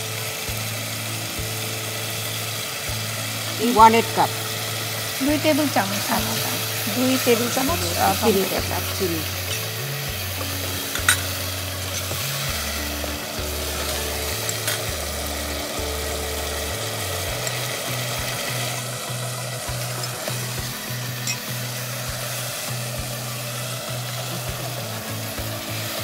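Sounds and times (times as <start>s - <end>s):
background music: 0.0s - 26.0s
paste sizzling in a pot: 0.0s - 26.0s.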